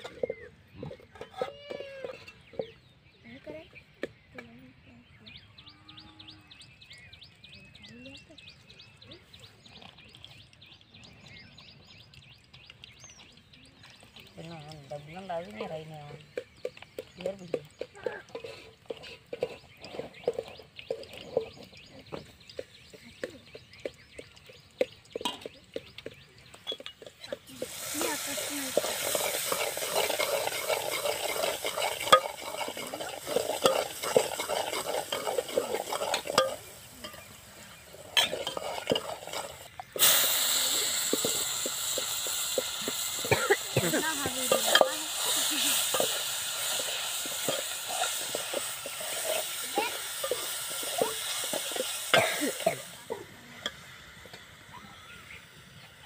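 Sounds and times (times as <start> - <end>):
ladle scraping metal pot: 0.0 - 2.8, 14.9 - 24.3, 26.5 - 52.9
vegetables sizzling in hot oil: 26.7 - 56.0.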